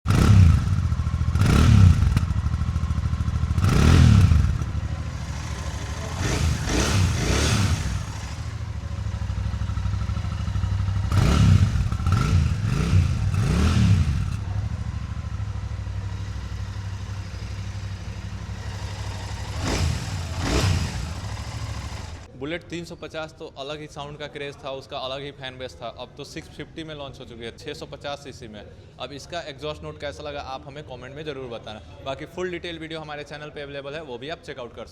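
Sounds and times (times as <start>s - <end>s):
motorcycle engine idling and revving: 0.0s - 22.3s.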